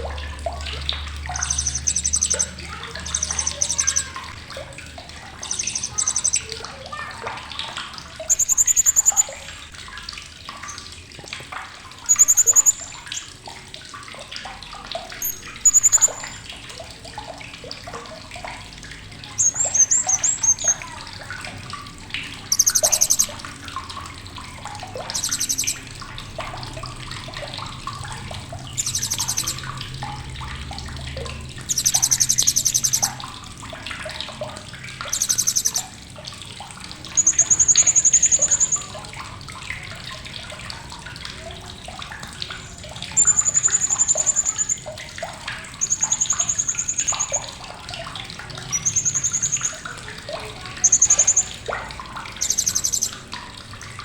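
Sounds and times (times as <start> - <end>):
soft bird chirping: 0.7 - 4.6, 5.3 - 7.1, 8.2 - 9.7, 12.1 - 13.3, 15.2 - 16.5, 19.2 - 21.0, 22.4 - 23.5, 24.9 - 25.9, 28.7 - 29.7, 31.6 - 33.2, 35.0 - 35.9, 37.0 - 39.1, 42.6 - 47.6, 48.6 - 51.7, 52.3 - 53.3
parrot high-pitched chattering: 1.3 - 4.4, 5.4 - 7.2, 8.3 - 9.7, 12.1 - 13.3, 15.2 - 16.4, 19.3 - 21.0, 22.4 - 23.5, 25.0 - 25.8, 28.8 - 29.6, 31.6 - 33.2, 35.1 - 36.0, 37.1 - 39.0, 42.6 - 44.9, 45.8 - 47.4, 48.6 - 49.8, 50.7 - 51.6, 52.4 - 53.2.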